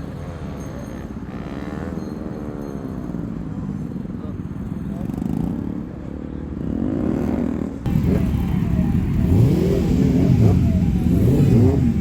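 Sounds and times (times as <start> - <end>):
motorcycle engines revving: 0.0 - 3.8, 4.8 - 12.0.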